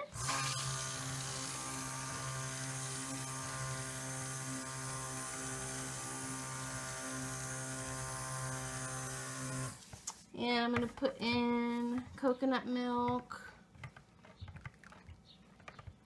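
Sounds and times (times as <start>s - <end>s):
stick blender running: 0.0s - 9.8s.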